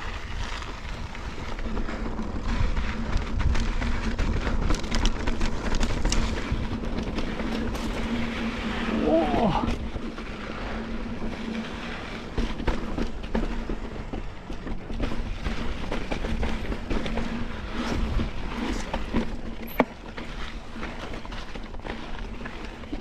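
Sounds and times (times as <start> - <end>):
bike rattling and knocking: 0.0 - 23.0
bike tyres rolling on rock: 0.0 - 23.0.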